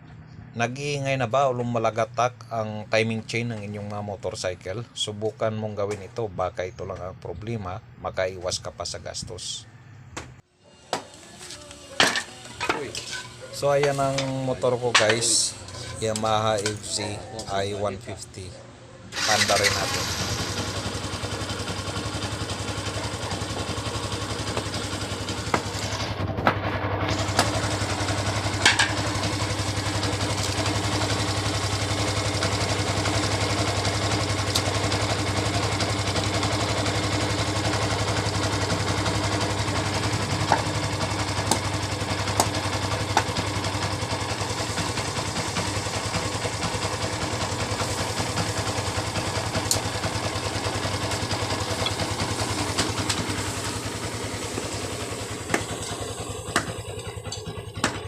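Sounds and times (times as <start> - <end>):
motorcycle engine idling: 19.2 - 58.0.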